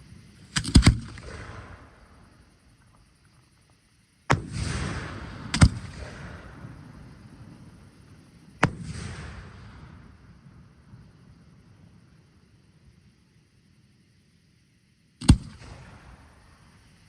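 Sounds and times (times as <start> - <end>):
sharp firework bangs: 4.3 - 7.1, 8.6 - 10.3, 15.2 - 16.6
firework boom with hiss: 4.3 - 8.0, 8.6 - 11.0.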